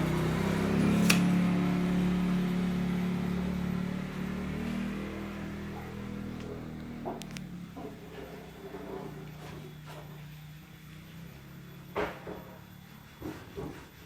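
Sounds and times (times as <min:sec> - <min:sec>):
motor humming: 0:00.0 - 0:09.4
sharp click: 0:00.9 - 0:01.4.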